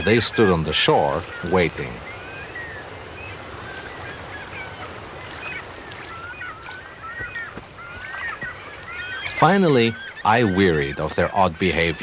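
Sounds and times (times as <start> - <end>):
birds chirping and whistling: 0.0 - 12.0
steady background hiss: 0.0 - 12.0.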